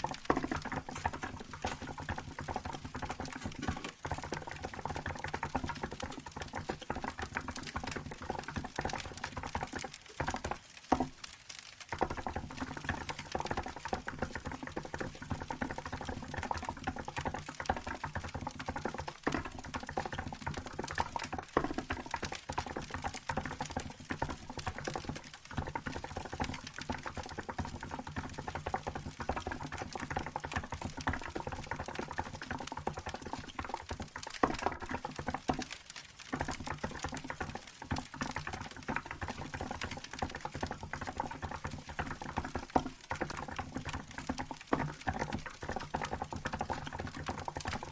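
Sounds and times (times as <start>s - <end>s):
soft keyboard typing: 0.0s - 47.9s.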